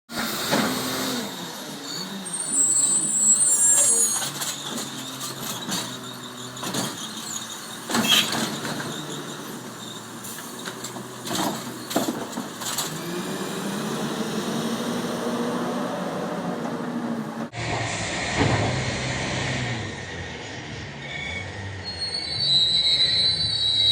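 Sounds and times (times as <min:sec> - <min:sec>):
high squeal: 0:01.7 - 0:10.4, 0:17.6 - 0:23.9.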